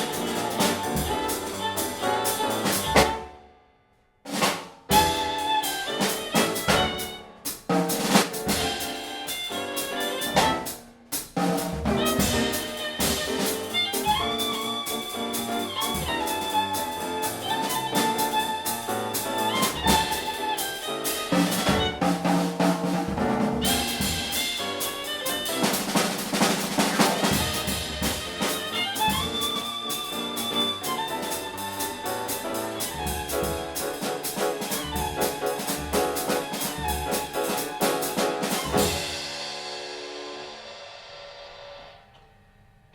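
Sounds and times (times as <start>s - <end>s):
jazz trio playing: 0.0s - 3.4s, 4.3s - 40.8s
violin melody: 0.0s - 3.4s, 4.9s - 7.6s, 8.5s - 10.8s, 11.8s - 22.7s, 23.3s - 39.4s
snare and rimshot hits: 4.3s - 5.2s.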